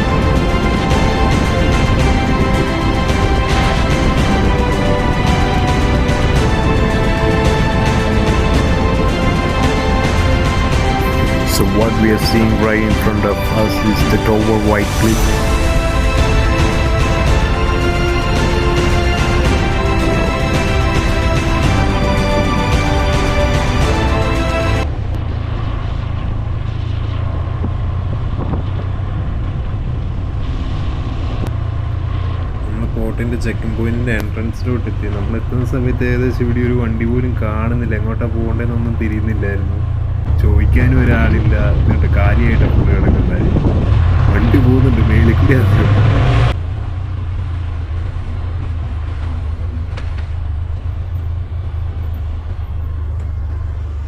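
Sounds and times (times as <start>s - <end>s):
wind buffeting microphone: 0.0s - 13.9s, 14.9s - 54.0s
background music: 0.0s - 24.9s, 32.7s - 46.6s
motorcycle engine rumble: 0.0s - 54.0s.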